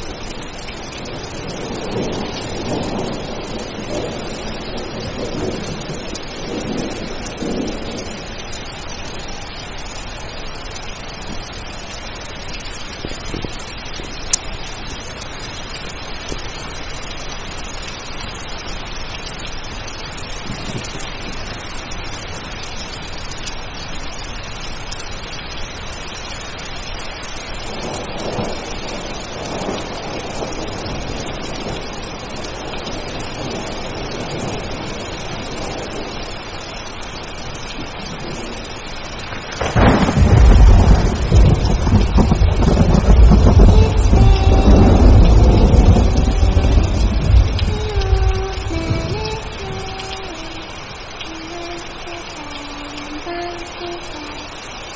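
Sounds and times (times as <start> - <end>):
heavy rain: 0.0 - 54.9
rolling thunder: 1.0 - 8.4, 39.6 - 50.7
deep thunderclap: 39.6 - 50.6.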